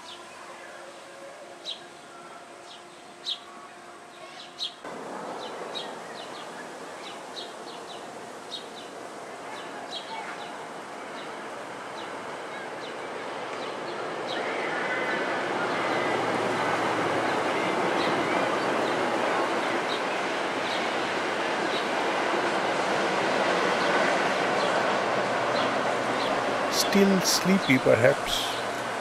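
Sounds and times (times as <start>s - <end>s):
steady background noise: 0.0s - 29.0s.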